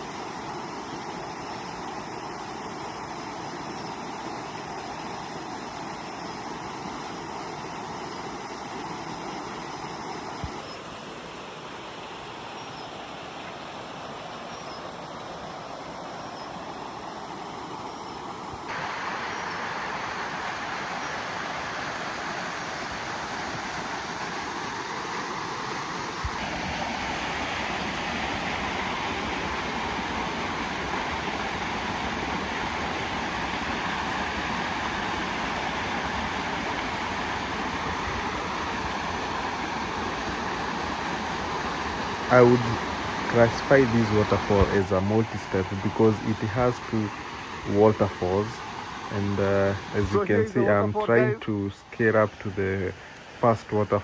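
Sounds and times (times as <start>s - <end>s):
waterfall rushing: 18.7s - 54.0s.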